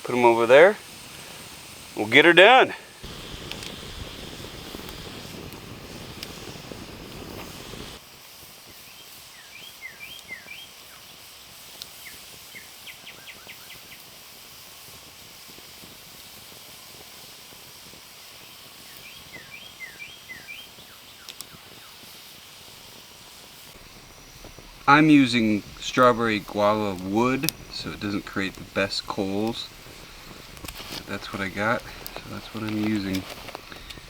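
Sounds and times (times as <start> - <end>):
broad rushing noise: 23.7 - 34.0.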